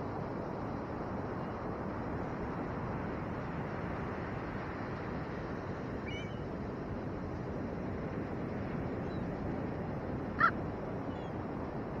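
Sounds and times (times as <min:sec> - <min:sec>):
wind: 0:00.0 - 0:12.0
faint bird chirp: 0:06.0 - 0:06.4, 0:11.1 - 0:11.4.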